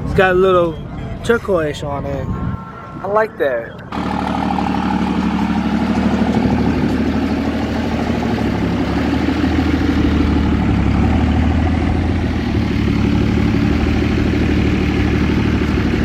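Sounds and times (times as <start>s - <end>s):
diesel truck engine idling: 3.8s - 16.0s.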